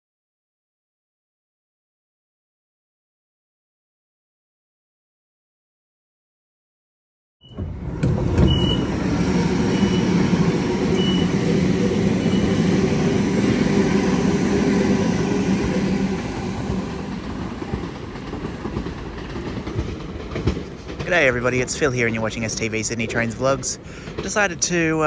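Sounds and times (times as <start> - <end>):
electric train rumbling past: 7.4 - 25.0.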